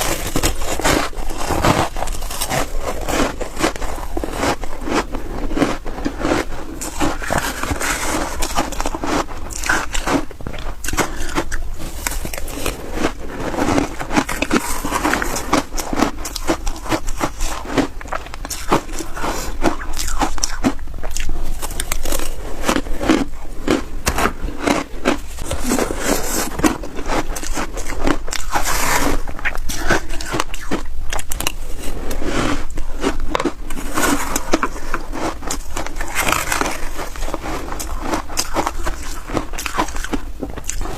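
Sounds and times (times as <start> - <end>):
chewing crunchy ice: 0.0 - 40.9.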